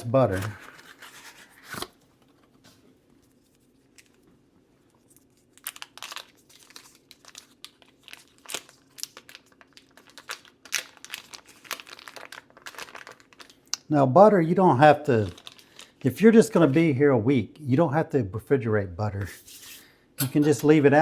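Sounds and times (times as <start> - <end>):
wrapper crinkling and tearing: 4.9 - 13.9, 14.8 - 16.8.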